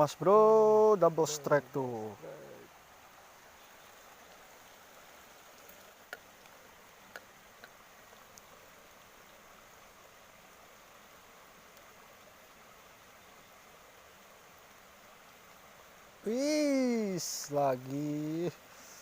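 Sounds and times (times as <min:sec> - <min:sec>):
stream water flowing: 0:00.0 - 0:19.0
faint clicks: 0:05.6 - 0:08.5.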